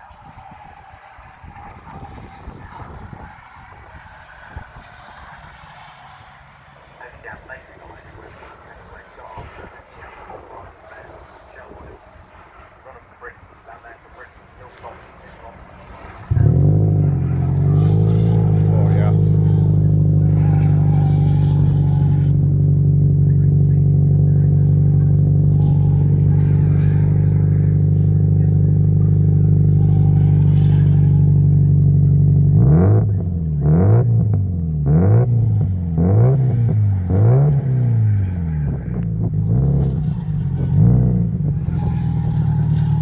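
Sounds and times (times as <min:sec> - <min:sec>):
car engine idling: 0:00.0 - 0:43.0
engine revving in throttle blips: 0:14.6 - 0:43.0.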